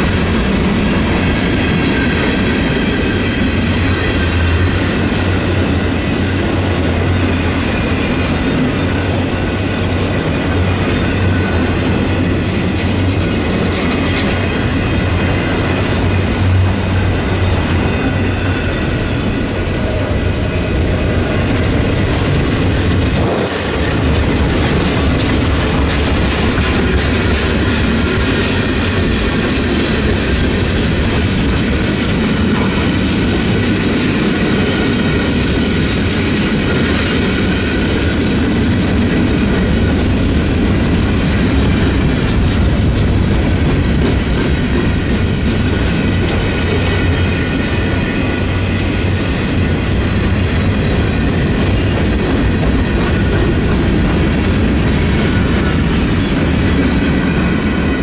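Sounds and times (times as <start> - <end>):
train rolling on rails: 0.0 - 58.0.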